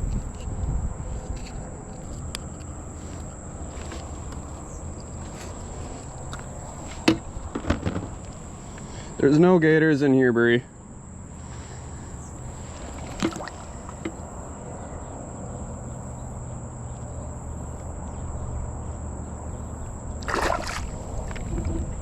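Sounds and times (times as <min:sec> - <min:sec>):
water sloshing around kayak hull: 0:00.0 - 0:09.2, 0:11.5 - 0:14.4, 0:19.8 - 0:22.0
steady low hum: 0:00.0 - 0:22.0
water splash: 0:13.0 - 0:14.0, 0:20.2 - 0:21.7.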